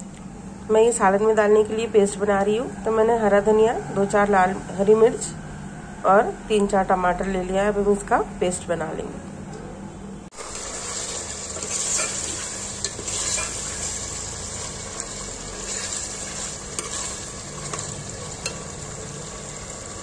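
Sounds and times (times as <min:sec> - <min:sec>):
chicken sizzling in hot oil: 0:10.3 - 0:20.0
metal spoon stirring: 0:10.5 - 0:18.8.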